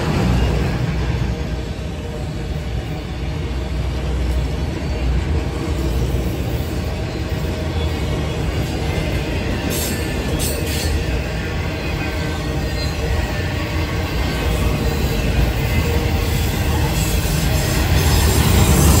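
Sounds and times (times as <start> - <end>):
freight train rumbling on rails: 0.0 - 19.0.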